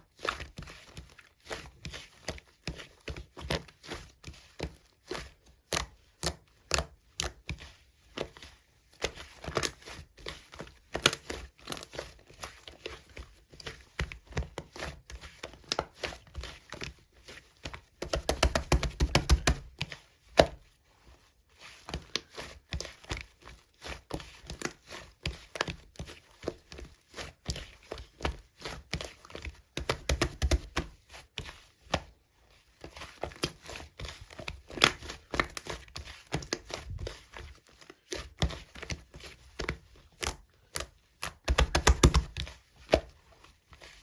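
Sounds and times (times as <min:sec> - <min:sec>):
slime squished by hand: 0:38.0 - 0:43.1.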